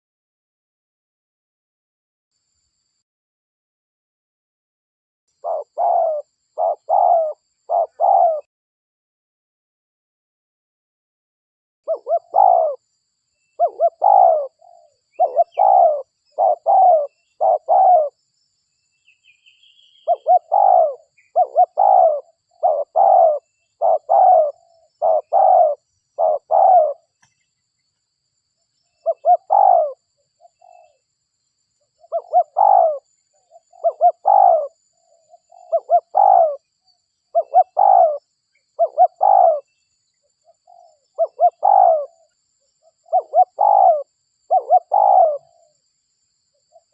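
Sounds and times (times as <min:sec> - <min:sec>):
faint bird chirp: 0:05.3 - 0:08.5, 0:11.9 - 0:46.9
dove cooing: 0:05.4 - 0:08.5, 0:11.9 - 0:12.8, 0:13.6 - 0:18.2, 0:19.9 - 0:27.2, 0:29.0 - 0:31.0, 0:32.0 - 0:36.7, 0:37.3 - 0:39.7, 0:40.5 - 0:45.7.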